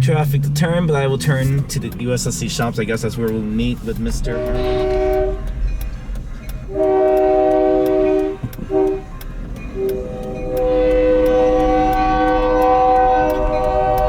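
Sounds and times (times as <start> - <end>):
locomotive air horn blasts: 4.2 - 5.8, 6.7 - 14.0.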